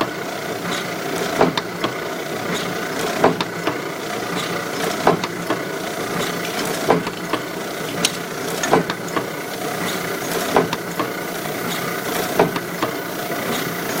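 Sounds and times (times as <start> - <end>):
press knocking on cutting stroke: 0.0 - 14.0
press machine running: 0.0 - 14.0.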